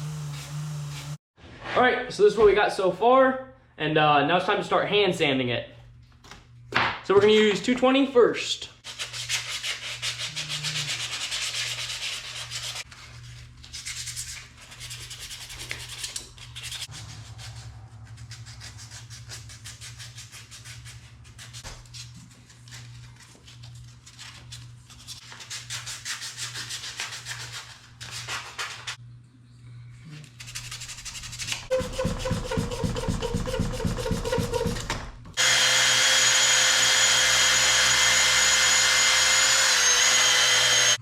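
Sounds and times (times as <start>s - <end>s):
sandpaper rubbing on wood: 8.9s - 12.9s, 30.4s - 34.8s.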